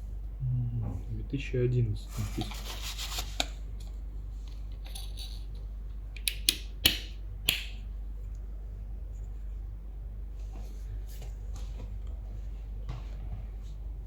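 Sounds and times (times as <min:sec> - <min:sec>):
faint scraping and rustling: 0:02.0 - 0:03.6.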